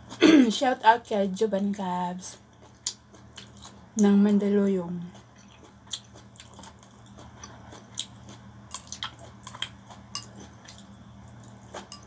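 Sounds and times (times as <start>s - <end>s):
steady low hum: 0.0s - 12.0s
wet chewing of noodles: 2.3s - 4.1s, 5.0s - 12.0s.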